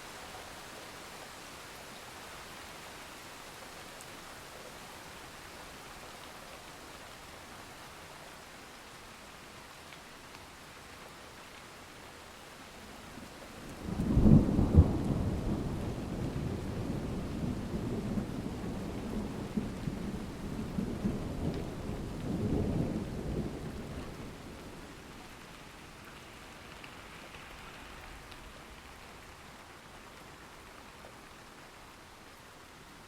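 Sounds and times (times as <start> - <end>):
thunder rumbling: 13.7 - 24.8.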